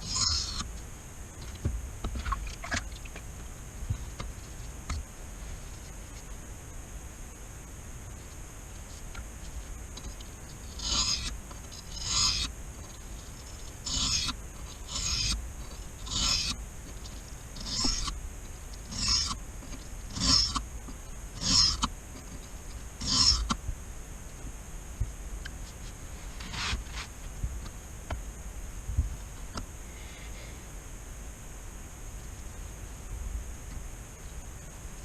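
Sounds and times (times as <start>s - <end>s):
knife scraping on whetstone: 10.8s - 12.5s, 13.8s - 15.4s, 16.1s - 16.6s, 17.6s - 18.1s, 18.9s - 19.4s, 20.1s - 20.6s, 26.4s - 27.1s.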